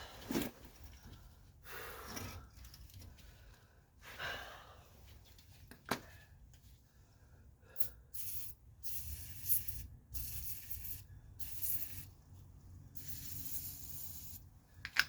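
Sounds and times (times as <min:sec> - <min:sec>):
aerosol can spraying: 0:07.8 - 0:12.1, 0:13.0 - 0:14.5.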